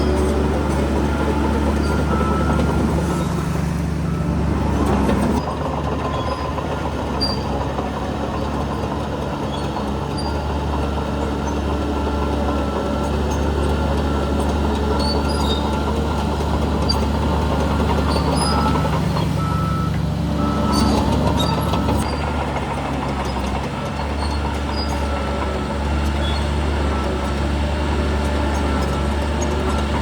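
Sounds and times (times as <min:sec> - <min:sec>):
reversing alarm beeps: 0:00.0 - 0:04.4, 0:16.8 - 0:22.2
diesel machinery engine hum: 0:00.0 - 0:30.0.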